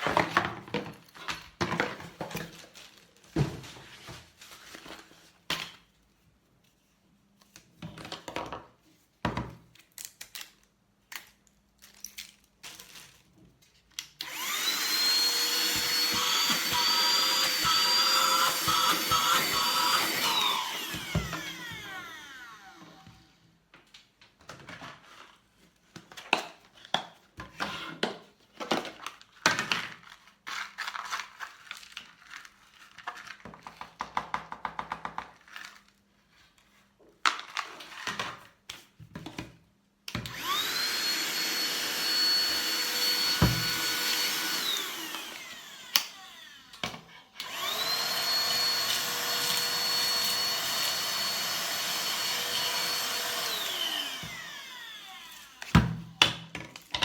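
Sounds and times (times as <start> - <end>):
handheld vacuum motor whine: 14.2 - 23.4, 40.2 - 56.0.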